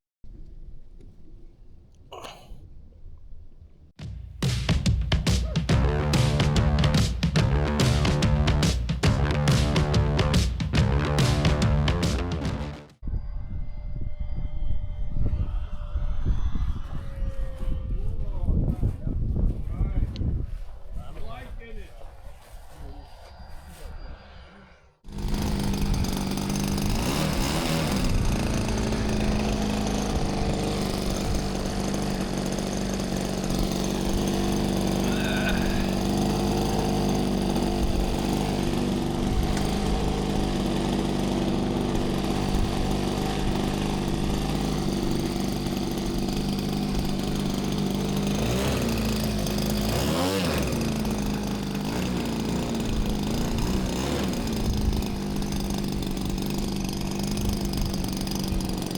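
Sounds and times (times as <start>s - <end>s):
model airplane engine running: 25.1s - 58.9s.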